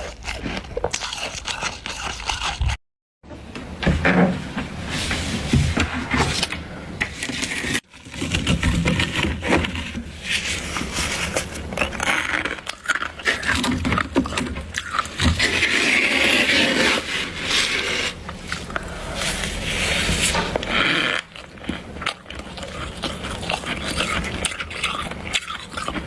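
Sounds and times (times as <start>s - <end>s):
frost being scraped: 0.0s - 2.8s, 7.5s - 13.9s, 14.7s - 21.3s
frost crunching while eaten: 0.0s - 2.8s, 10.2s - 26.0s.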